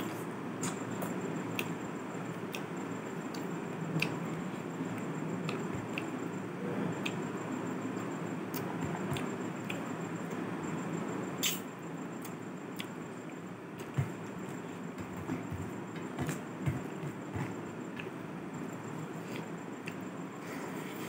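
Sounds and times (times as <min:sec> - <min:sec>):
steady low hum: 0:00.0 - 0:21.0
chewing with wet smacks: 0:02.5 - 0:06.2, 0:08.5 - 0:09.9, 0:12.2 - 0:13.0.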